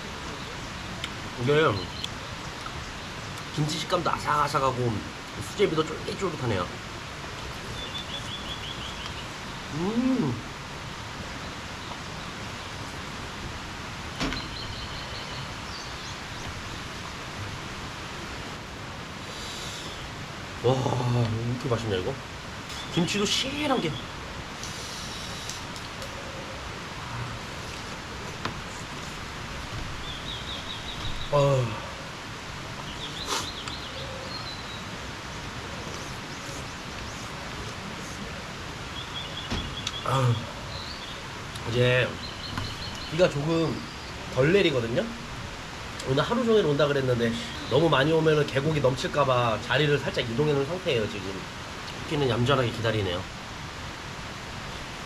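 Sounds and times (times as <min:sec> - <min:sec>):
heavy rain: 0:00.0 - 0:55.0
stream rushing: 0:00.0 - 0:55.0
faint bird chirps: 0:07.6 - 0:10.4, 0:14.2 - 0:16.9, 0:22.7 - 0:27.4, 0:30.0 - 0:32.2, 0:32.8 - 0:38.3, 0:38.9 - 0:45.2, 0:47.1 - 0:48.3.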